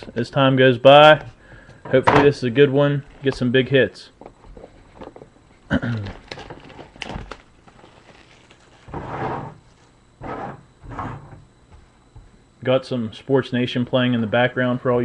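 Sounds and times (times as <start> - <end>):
box wrap and cardboard crinkling: 5.9 - 9.9.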